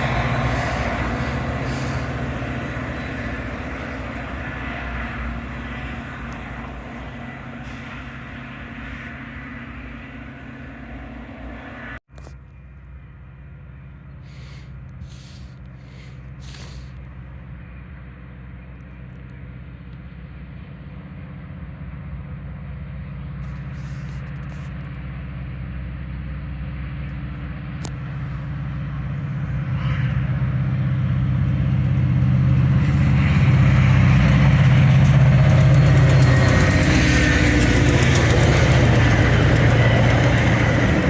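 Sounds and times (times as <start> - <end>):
train wheels rushing on rails: 0.0 - 9.6, 29.7 - 41.0
diesel locomotive engine droning: 0.0 - 41.0.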